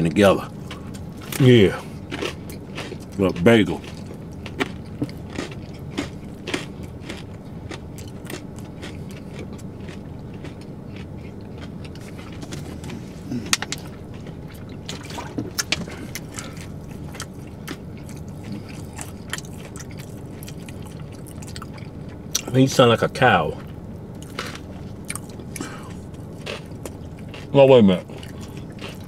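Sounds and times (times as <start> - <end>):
steady low hum: 0.0 - 29.0
open-mouth wet chewing: 0.6 - 22.5, 23.6 - 29.0.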